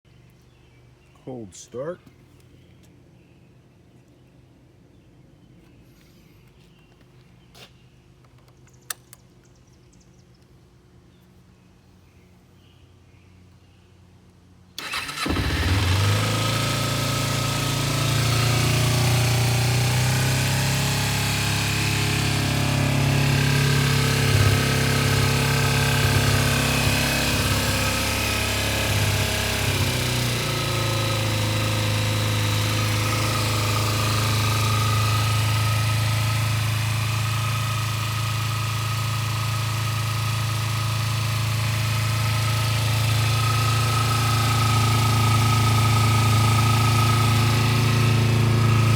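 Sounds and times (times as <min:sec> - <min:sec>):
motorcycle engine starting and idling: 0:14.8 - 0:48.9.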